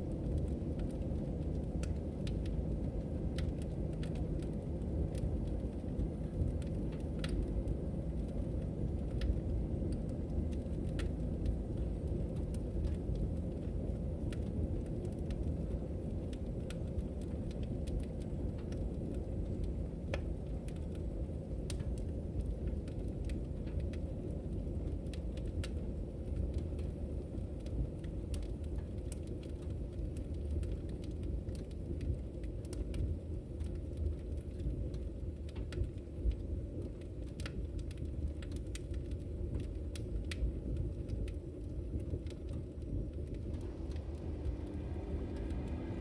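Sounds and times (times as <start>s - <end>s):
fire crackling and popping: 0.0s - 46.0s
fire rumbling: 0.0s - 46.0s.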